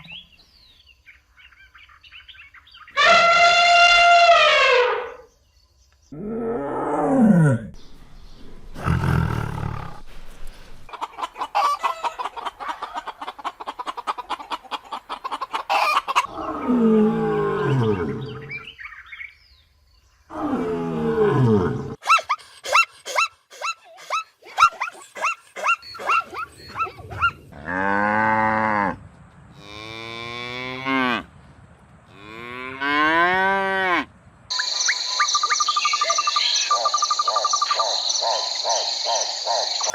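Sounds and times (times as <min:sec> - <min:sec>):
animal calls: 0:21.7 - 0:27.8, 0:34.5 - 0:39.9.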